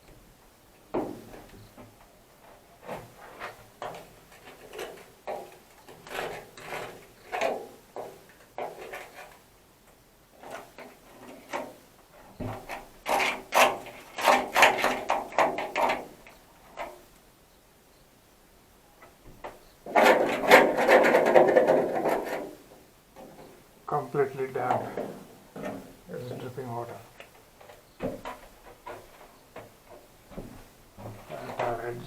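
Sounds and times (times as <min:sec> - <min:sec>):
hand scraping and rubbing vehicle body: 0:19.0 - 0:22.6.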